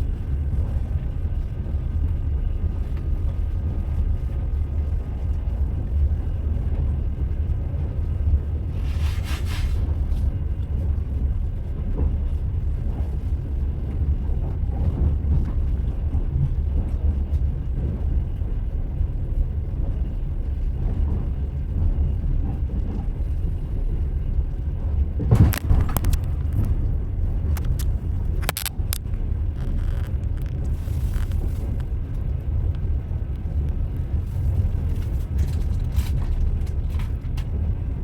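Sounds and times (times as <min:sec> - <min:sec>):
train rumbling: 0:00.0 - 0:38.0
wheels knocking on rails: 0:25.2 - 0:34.2.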